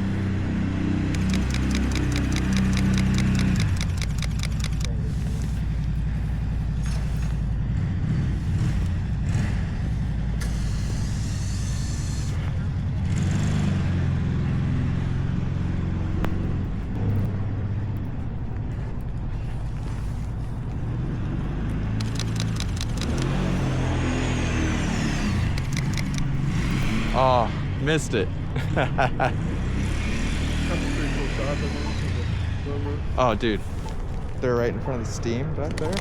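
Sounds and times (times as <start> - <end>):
vehicle engine running: 0.0 - 36.0
fast sharp clicks: 1.1 - 6.0, 22.0 - 23.9, 25.2 - 26.8, 35.6 - 36.0.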